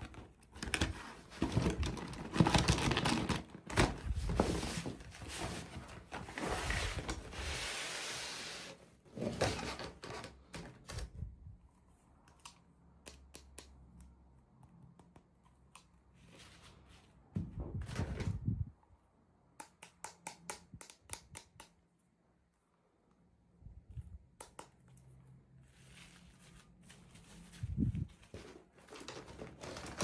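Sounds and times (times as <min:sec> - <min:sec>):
soft rustle: 0:16.1 - 0:17.3, 0:25.2 - 0:29.1.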